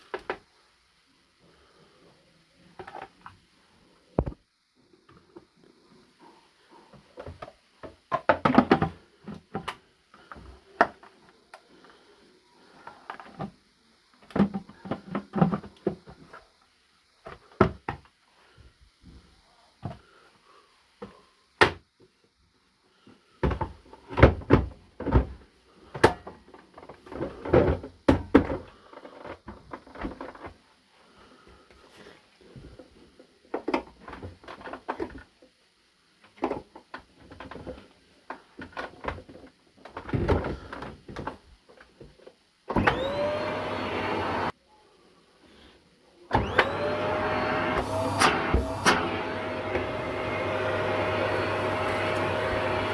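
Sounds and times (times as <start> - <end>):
vacuum cleaner motor whining: 42.7 - 44.5, 46.3 - 52.9.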